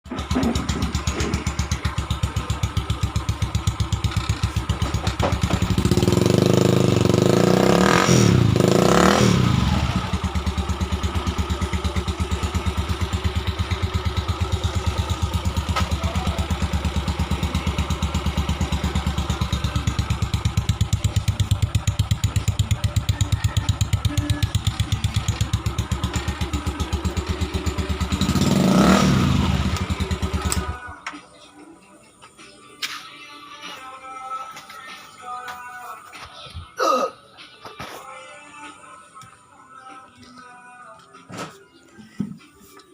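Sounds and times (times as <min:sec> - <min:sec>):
motorcycle engine popping and revving: 0:00.1 - 0:31.0.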